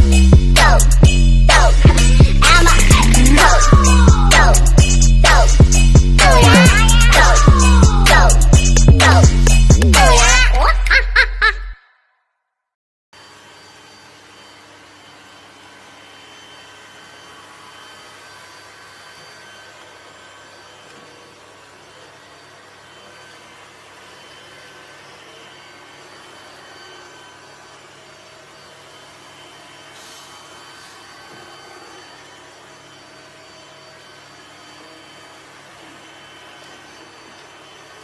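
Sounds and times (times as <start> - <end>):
motor or fan rushing: 0.0 - 10.4.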